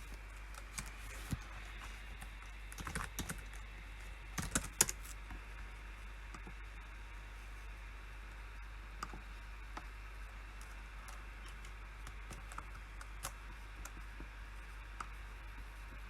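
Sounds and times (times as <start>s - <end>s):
computer keyboard keystrokes: 0.0s - 1.4s, 2.1s - 5.2s, 11.1s - 14.0s.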